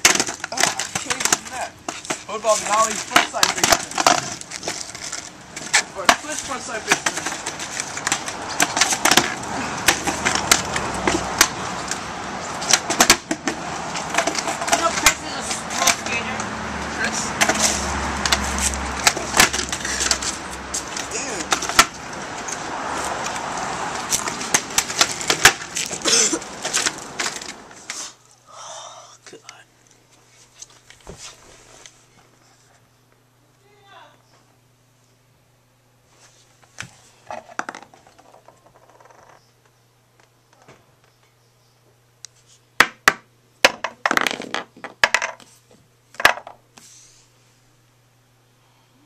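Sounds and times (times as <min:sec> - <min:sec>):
skateboard clacking on pavement: 0:00.0 - 0:04.8, 0:05.5 - 0:12.0, 0:12.6 - 0:16.2, 0:17.4 - 0:27.6.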